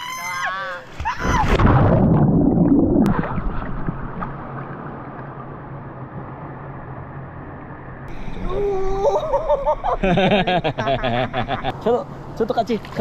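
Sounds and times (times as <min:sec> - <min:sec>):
water splashing: 0:00.8 - 0:05.8.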